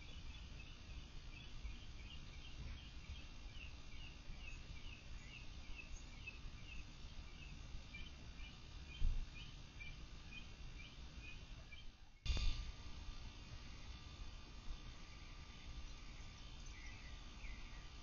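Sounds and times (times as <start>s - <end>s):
bird chirping: 0.0s - 12.0s, 13.3s - 18.0s
steady low rumble: 12.2s - 18.0s.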